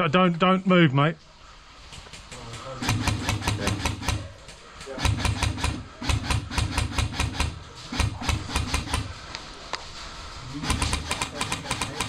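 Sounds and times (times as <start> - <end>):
airsoft guns firing: 2.0 - 9.3, 10.6 - 12.0.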